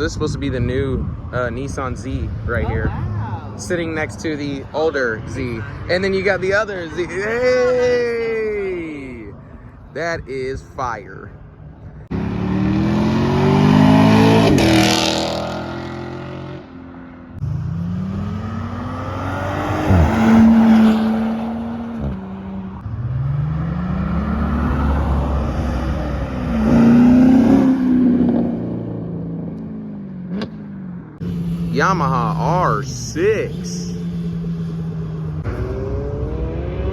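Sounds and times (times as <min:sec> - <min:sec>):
vehicle engine revving: 0:12.1 - 0:16.7, 0:17.3 - 0:36.9.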